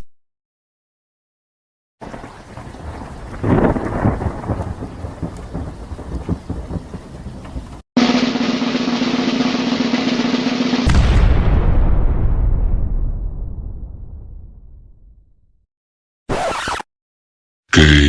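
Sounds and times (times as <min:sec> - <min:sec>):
rain hiss: 0:02.0 - 0:07.8
rolling thunder: 0:02.0 - 0:07.8.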